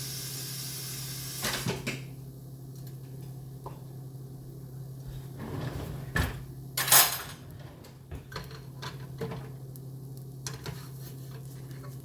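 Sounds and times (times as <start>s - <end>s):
steady low hum: 0.0s - 12.0s
cutlery and dishes clinking: 6.8s - 7.4s.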